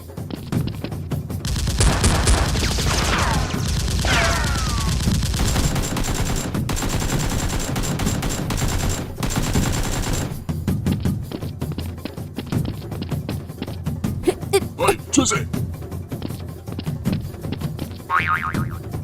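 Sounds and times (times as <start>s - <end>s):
rapid automatic gunfire: 5.4s - 10.3s.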